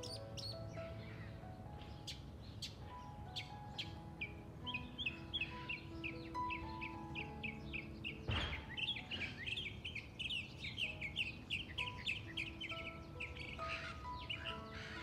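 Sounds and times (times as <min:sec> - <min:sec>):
small birds chirping: 0:00.0 - 0:15.0
soft music with held notes: 0:00.0 - 0:15.0.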